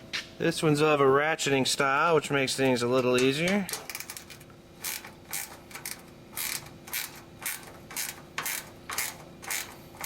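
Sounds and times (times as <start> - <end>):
ratcheting wrench clicking: 3.2 - 10.0.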